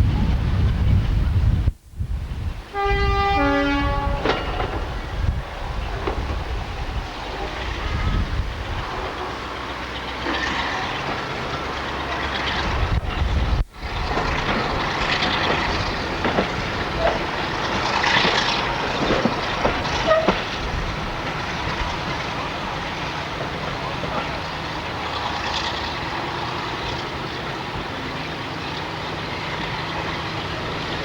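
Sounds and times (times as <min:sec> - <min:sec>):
train running on rails: 0:00.0 - 0:31.0
wheel clicks over track joints: 0:09.8 - 0:22.3.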